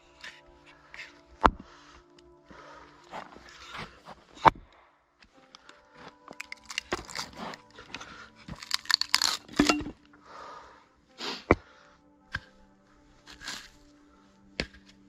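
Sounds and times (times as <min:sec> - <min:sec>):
rustling and crinkling handling noises: 0:05.2 - 0:10.0.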